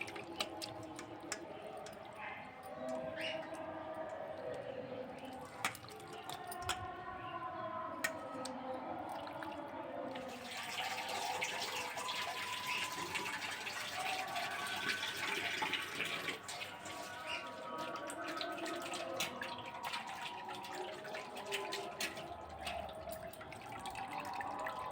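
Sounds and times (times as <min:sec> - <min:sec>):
water running and splashing: 0:00.0 - 0:03.7, 0:09.1 - 0:24.9.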